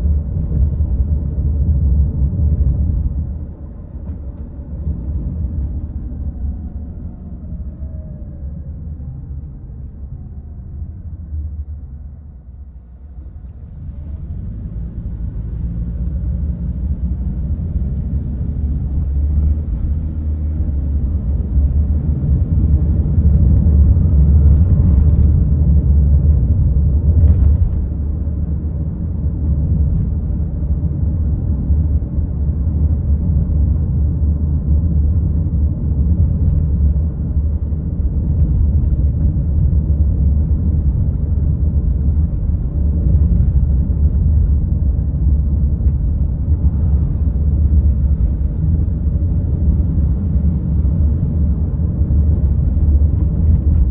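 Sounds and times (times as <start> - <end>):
car driving rumble: 0.0 - 53.9.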